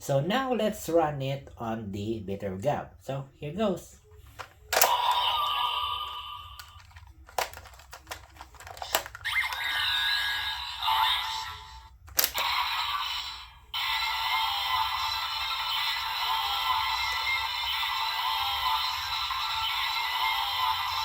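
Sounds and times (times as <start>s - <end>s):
plastic toy clicks: 4.4s - 5.3s, 6.5s - 9.9s, 12.0s - 12.6s
electronic toy music and effects: 4.7s - 21.0s.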